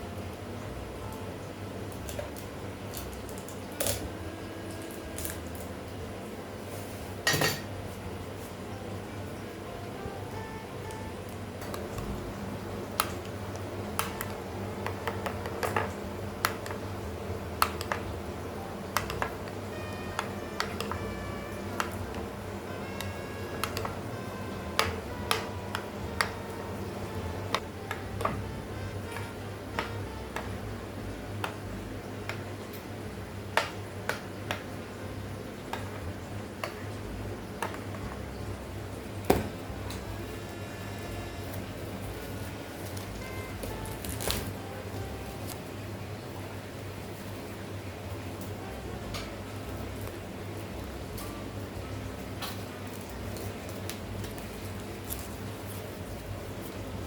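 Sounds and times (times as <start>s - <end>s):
low hum: 0.0s - 33.6s, 34.7s - 52.4s
faint background music: 0.0s - 57.0s
sharp clicks and taps: 19.0s - 19.6s, 24.8s - 26.5s.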